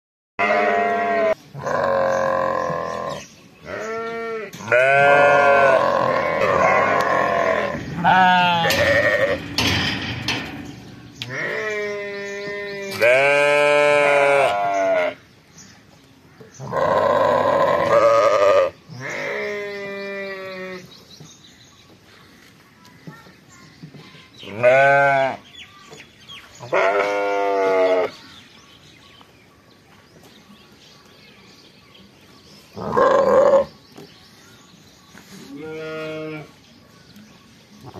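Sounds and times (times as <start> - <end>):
lambs bleating: 0.4 - 9.4, 11.3 - 15.2, 16.6 - 20.8, 24.5 - 25.4, 26.6 - 28.1, 35.5 - 36.5.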